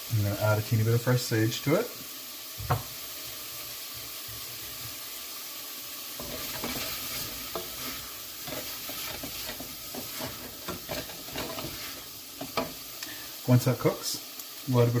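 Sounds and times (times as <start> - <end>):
vegetables sizzling in butter: 0.0 - 15.0
utensil scraping a pot: 6.2 - 12.8.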